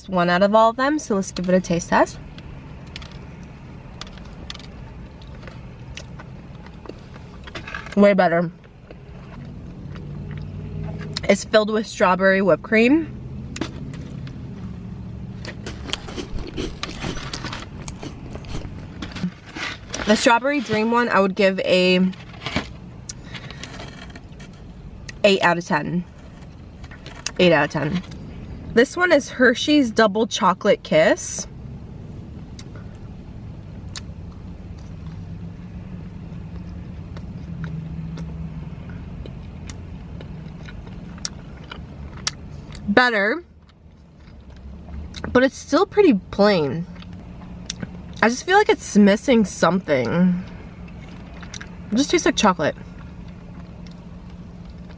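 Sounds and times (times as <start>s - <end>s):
chewing and wet mouth sounds: 15.5s - 19.3s, 36.6s - 42.9s, 43.5s - 45.4s, 46.8s - 48.2s, 50.4s - 54.9s
person chewing: 15.6s - 19.2s.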